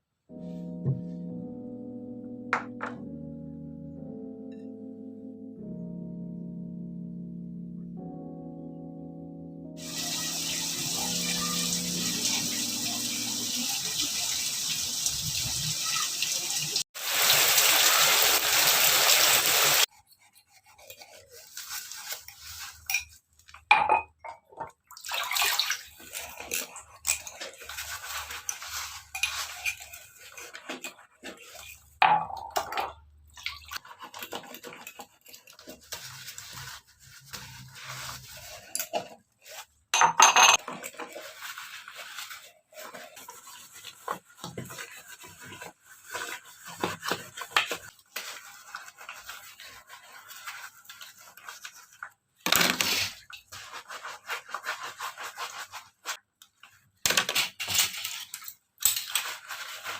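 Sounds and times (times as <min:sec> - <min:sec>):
dishes and pots clinking: 0:22.8 - 0:24.8, 0:28.5 - 0:33.0, 0:40.0 - 0:41.2.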